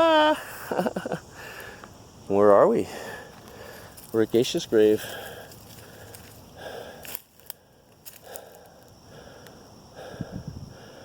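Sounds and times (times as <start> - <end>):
soft slow breathing: 1.3 - 2.0, 2.8 - 4.1, 5.0 - 11.0.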